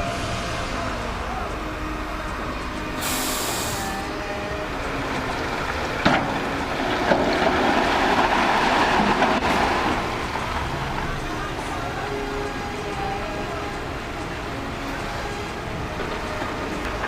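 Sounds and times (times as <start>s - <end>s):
vehicle rumble: 0.0s - 17.0s
brief hiss: 3.0s - 4.0s.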